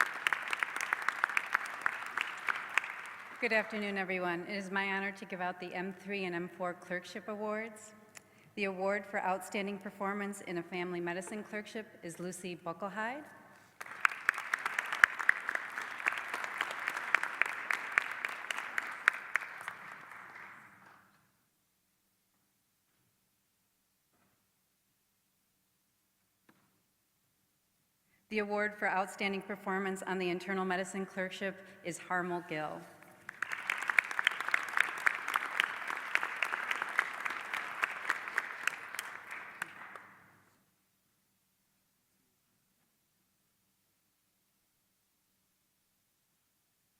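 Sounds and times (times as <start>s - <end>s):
audience applause: 0.0s - 3.4s, 13.7s - 20.8s, 33.2s - 40.1s.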